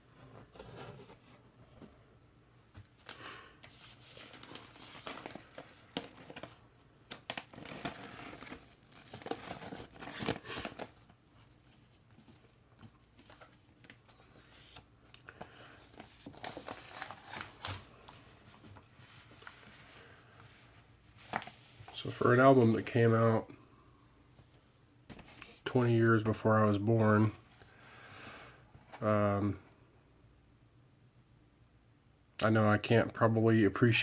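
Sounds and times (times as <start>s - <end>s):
packaging crinkling and rustling: 2.9s - 14.8s, 15.4s - 20.1s.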